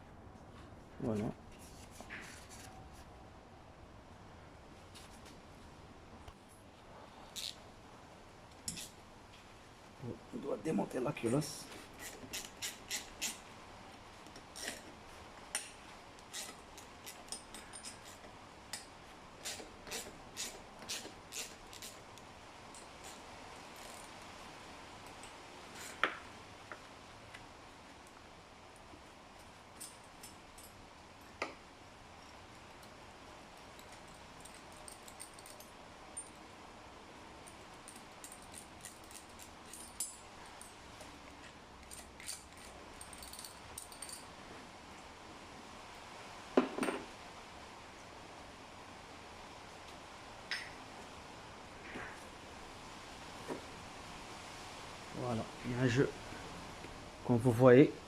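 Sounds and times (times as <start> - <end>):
low steady hiss: 0.0 - 58.0
metallic clicks and taps of tools: 33.6 - 36.4, 49.9 - 50.8
hand tools clicking on metal: 37.8 - 44.2.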